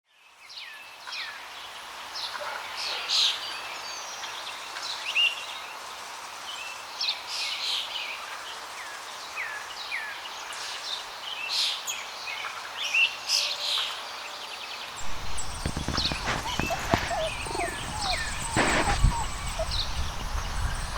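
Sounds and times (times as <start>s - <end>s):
outdoor hiss: 15.0s - 20.9s
small birds chirping: 15.0s - 20.9s.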